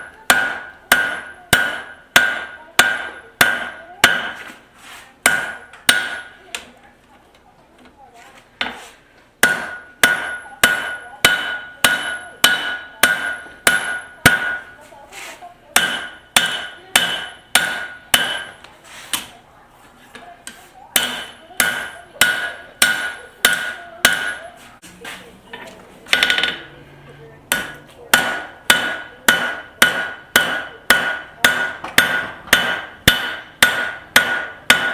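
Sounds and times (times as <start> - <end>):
hammer ringing on steel anvil: 0.0 - 4.4, 5.2 - 6.4, 9.4 - 14.8, 15.8 - 18.6, 21.0 - 24.5, 27.5 - 34.9.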